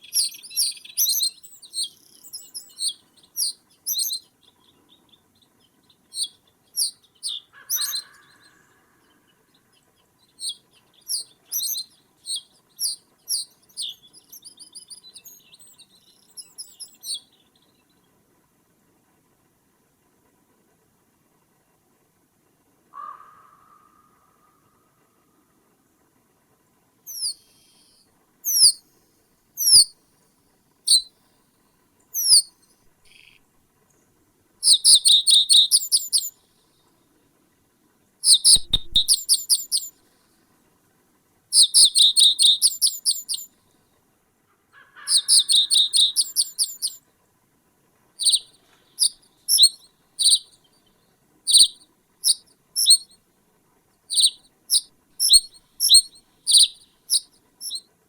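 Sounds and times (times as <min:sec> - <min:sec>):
small bird chirping: 0:00.0 - 0:18.0, 0:27.1 - 0:28.9, 0:29.6 - 0:30.0, 0:30.9 - 0:31.1, 0:32.1 - 0:34.0, 0:34.6 - 0:36.4, 0:38.2 - 0:40.0, 0:41.5 - 0:43.5, 0:45.0 - 0:47.0, 0:48.2 - 0:53.2, 0:54.1 - 0:57.9.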